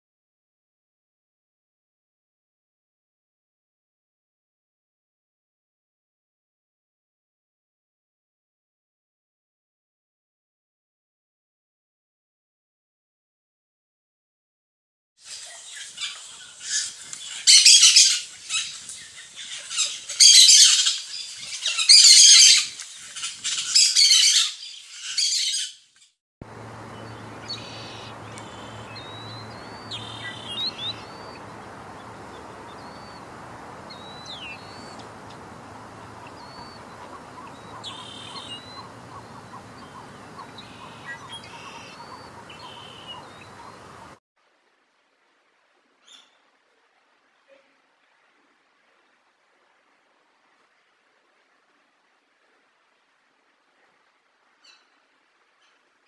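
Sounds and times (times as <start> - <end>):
birds squawking harshly: 15.3 - 25.8, 26.6 - 44.2
small birds chirping and whistling: 15.3 - 25.8, 26.9 - 33.3, 33.9 - 35.1, 35.8 - 44.2.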